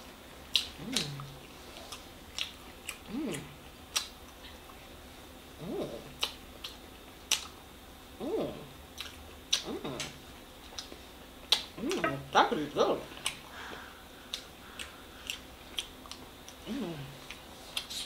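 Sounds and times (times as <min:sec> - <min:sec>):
lip and tongue smacks: 0:00.5 - 0:04.7, 0:06.1 - 0:07.6
person humming: 0:16.7 - 0:17.2.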